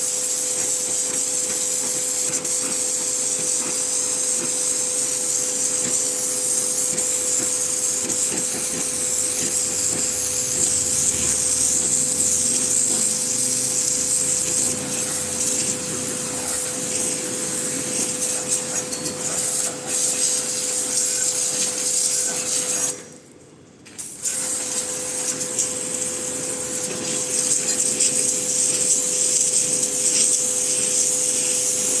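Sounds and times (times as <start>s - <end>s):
motor and pump hum: 0.0s - 23.0s, 24.4s - 32.0s
pressure washer spraying water: 0.0s - 23.1s, 24.0s - 32.0s.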